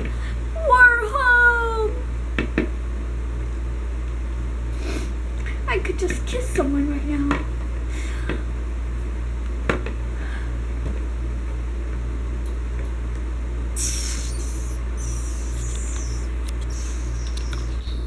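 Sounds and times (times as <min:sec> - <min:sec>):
low hum with faint throb: 0:00.0 - 0:18.0
sharp click: 0:15.6 - 0:17.8.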